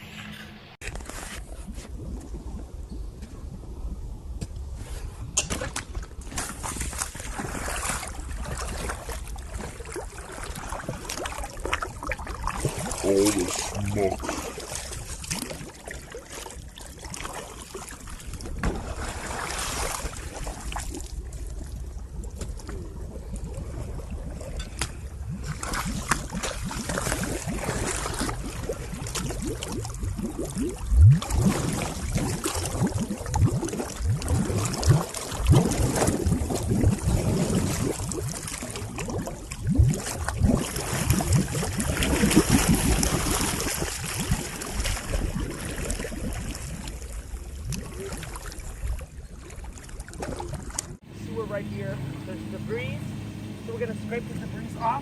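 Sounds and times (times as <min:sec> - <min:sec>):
water rushing down drain: 0:25.2 - 0:48.6.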